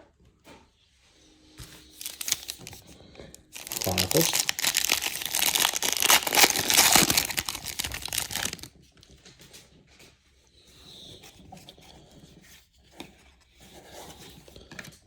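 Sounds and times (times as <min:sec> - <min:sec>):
cards being handled: 0:01.6 - 0:08.7
card pack wrapper tearing: 0:02.0 - 0:02.8, 0:03.4 - 0:08.7.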